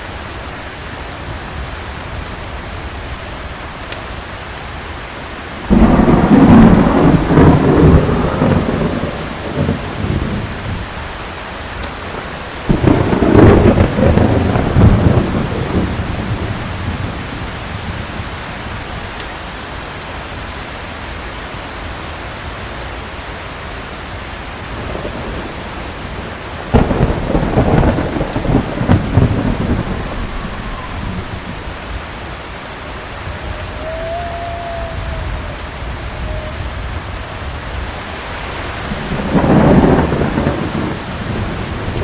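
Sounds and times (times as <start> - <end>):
heavy rain falling: 0.0 - 42.0
thunder clap and rumble: 5.6 - 19.2, 24.6 - 42.0.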